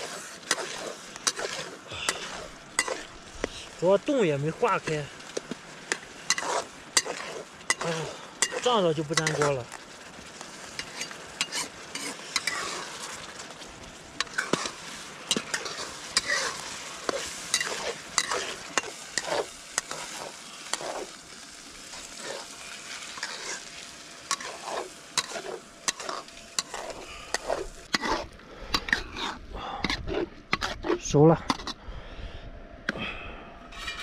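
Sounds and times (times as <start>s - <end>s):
metal ladle scraping a wok: 0.0s - 3.2s, 5.8s - 9.6s, 10.6s - 13.4s, 14.2s - 21.2s, 22.0s - 31.8s, 33.7s - 34.0s
rice sizzling in a wok: 0.0s - 29.4s.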